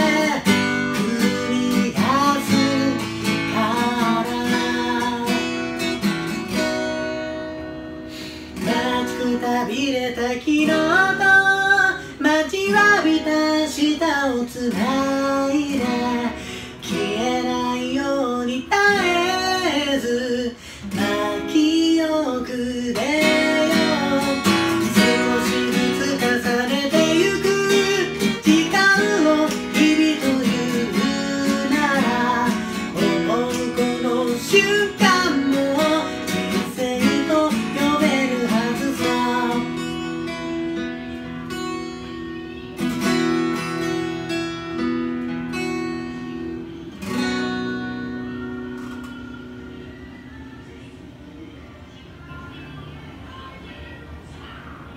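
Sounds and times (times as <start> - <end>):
person singing wordless melody: 0.0 - 6.1, 8.5 - 41.1
acoustic guitar strumming: 0.0 - 50.3.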